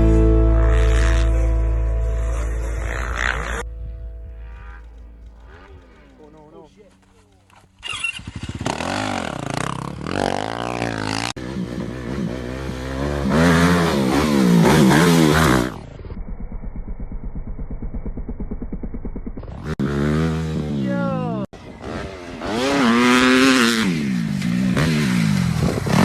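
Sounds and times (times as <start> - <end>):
engine puttering slowly: 0.0 - 13.0
motorcycle engines revving: 0.0 - 16.2, 18.4 - 26.0.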